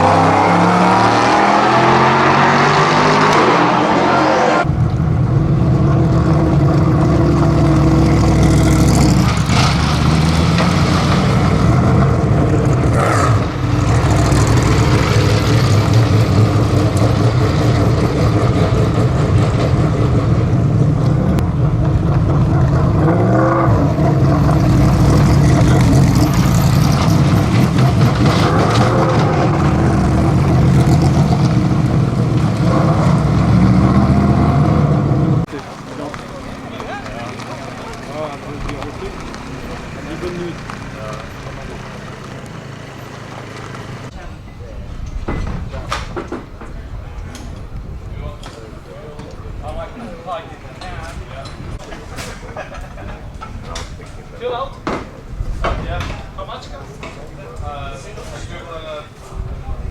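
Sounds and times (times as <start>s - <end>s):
race car engines at speed: 0.0s - 59.9s
deeper steady engine note: 3.9s - 44.8s.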